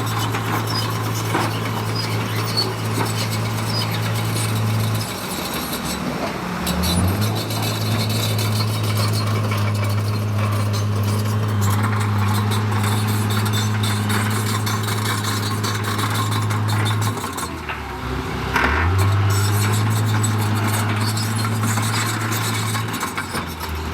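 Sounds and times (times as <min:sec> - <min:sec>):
rustle and clatter: 0:00.0 - 0:17.9
diesel engine droning: 0:00.0 - 0:23.9.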